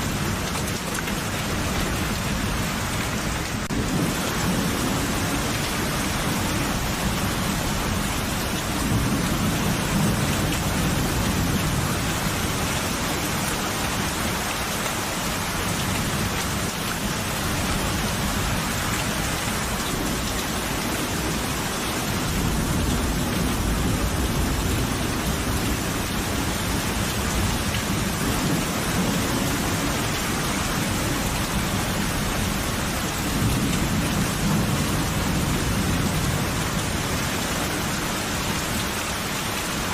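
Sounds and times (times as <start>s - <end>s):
heavy rain: 0.0s - 39.9s
low rolling thunder: 3.6s - 12.7s.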